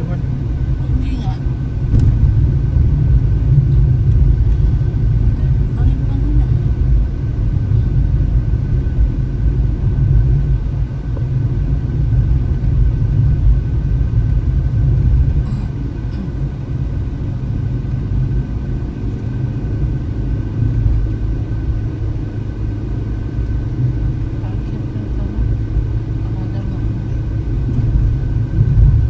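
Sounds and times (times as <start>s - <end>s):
car engine and tyres rumbling: 0.0s - 29.0s.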